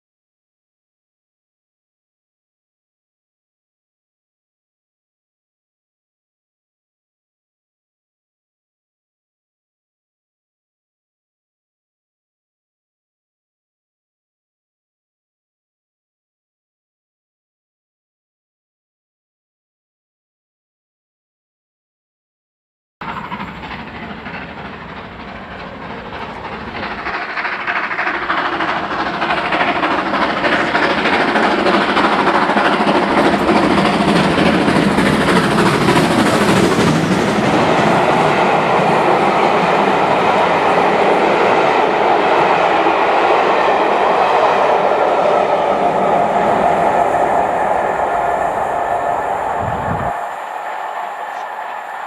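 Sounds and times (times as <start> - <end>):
train passing on rails: 23.0 - 52.0.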